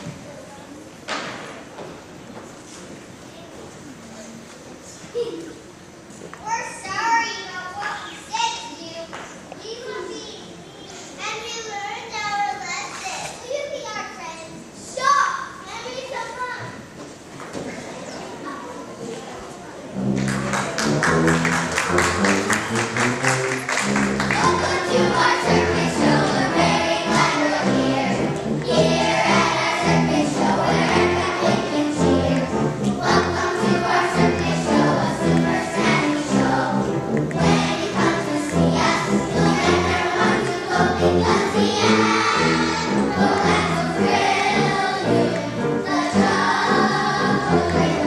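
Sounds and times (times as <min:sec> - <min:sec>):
instrumental accompaniment: 0:19.9 - 0:48.0
children singing in chorus: 0:24.3 - 0:48.0.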